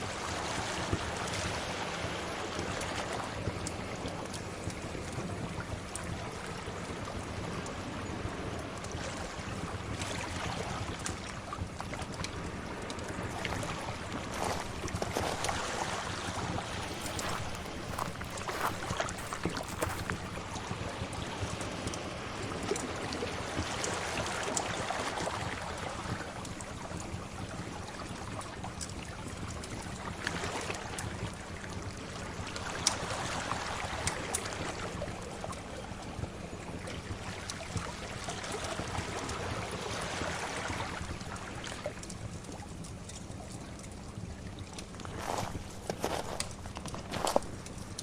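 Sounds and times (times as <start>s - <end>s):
wood fire crackling: 16.8s - 20.4s.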